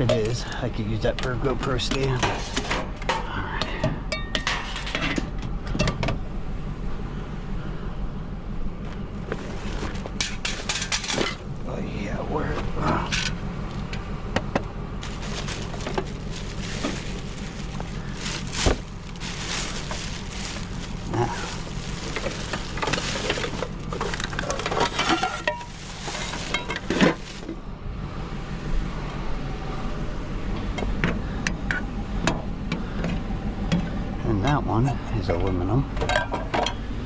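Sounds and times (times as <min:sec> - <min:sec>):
steady low hum: 0:00.0 - 0:37.0
metal and plastic pieces clattering: 0:10.2 - 0:11.4, 0:15.0 - 0:27.5.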